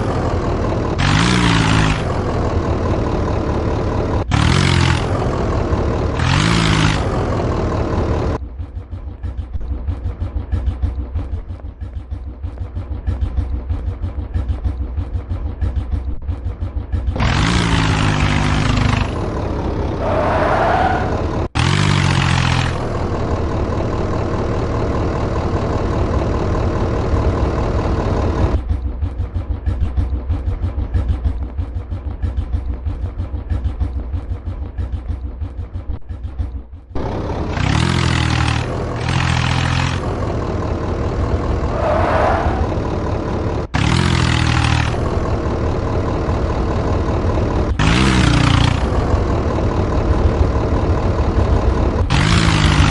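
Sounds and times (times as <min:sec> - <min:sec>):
tractor engine revving: 0:00.0 - 0:52.9.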